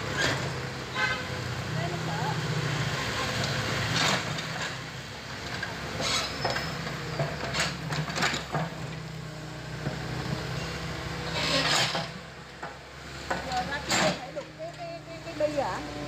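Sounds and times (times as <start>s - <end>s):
short scraping clanks: 5.6s - 8.6s, 10.6s - 12.2s, 13.8s - 14.4s.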